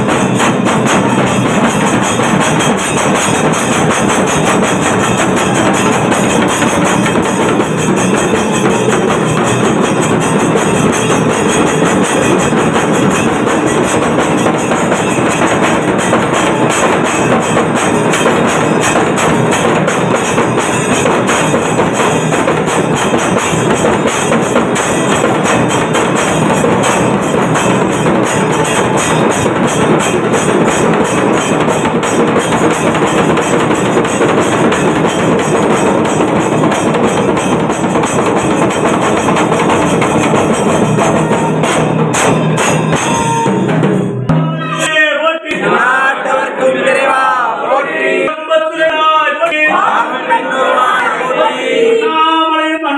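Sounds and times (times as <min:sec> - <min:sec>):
percussion ensemble drumming: 0:00.0 - 0:48.3.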